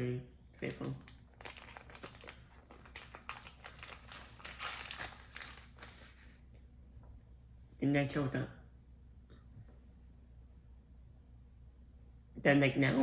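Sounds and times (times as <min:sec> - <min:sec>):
snack packaging crinkling: 0:00.8 - 0:06.4.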